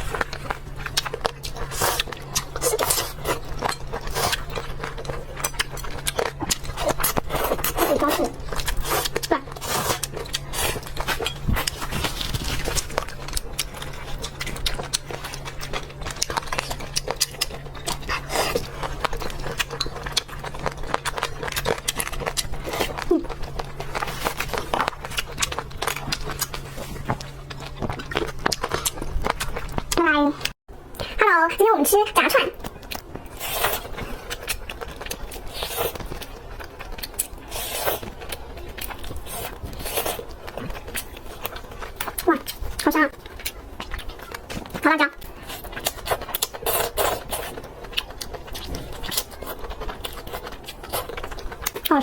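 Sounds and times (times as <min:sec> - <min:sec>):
person chewing and smacking: 0:00.0 - 0:31.1, 0:32.6 - 0:52.0
packaging rustling and scraping: 0:09.6 - 0:14.0.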